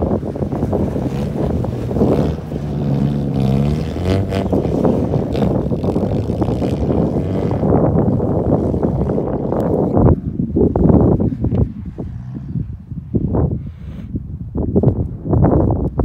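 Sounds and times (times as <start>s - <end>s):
wind noise on microphone: 0.0s - 16.0s
car engine revving: 0.2s - 9.3s.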